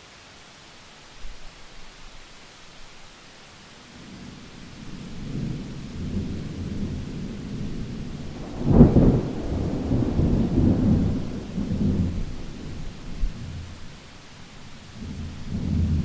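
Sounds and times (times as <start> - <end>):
rain hiss: 0.0 - 16.0
thunder rumbling and clapping: 4.9 - 13.8.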